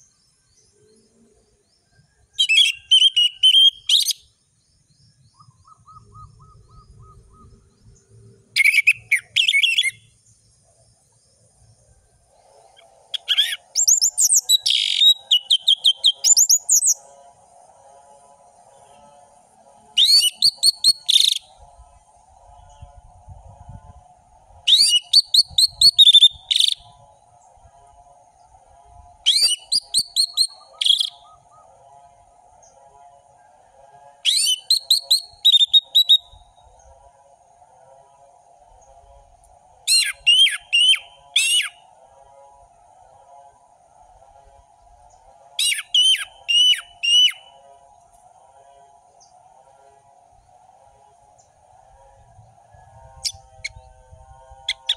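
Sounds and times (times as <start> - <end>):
thrush singing whistled notes: 1.7 - 10.4, 12.3 - 17.2, 19.9 - 21.6, 24.6 - 27.5, 28.4 - 31.8, 34.2 - 36.9, 39.9 - 41.9, 45.6 - 47.6, 52.4 - 54.9.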